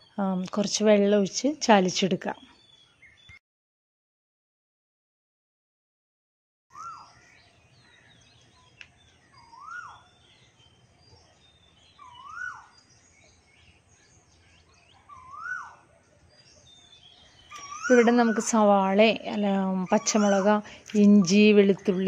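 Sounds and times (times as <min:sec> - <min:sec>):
faint chirping of birds: 0:00.0 - 0:03.4, 0:06.7 - 0:22.0
bird call rising and falling: 0:06.7 - 0:10.7, 0:11.4 - 0:13.4, 0:14.6 - 0:15.9, 0:16.5 - 0:18.6.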